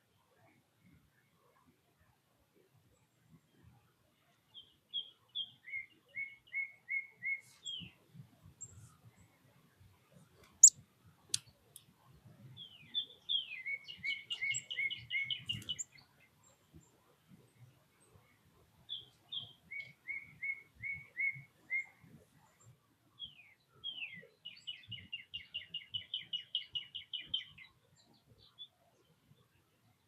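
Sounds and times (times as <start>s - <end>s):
songbird whistling: 5.4s - 7.8s, 12.7s - 15.9s, 18.9s - 22.0s.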